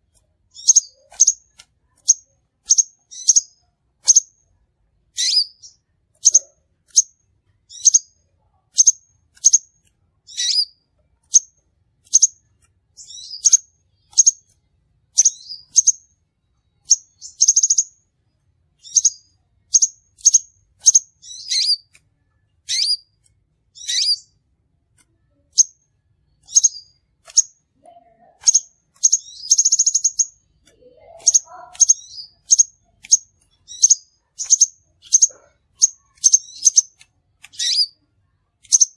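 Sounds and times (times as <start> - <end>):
bird chirping: 0.1 - 24.5, 25.2 - 38.9
bird buzzy trills: 5.2 - 8.1, 18.8 - 21.9, 22.7 - 23.1, 23.8 - 24.3, 28.4 - 38.0.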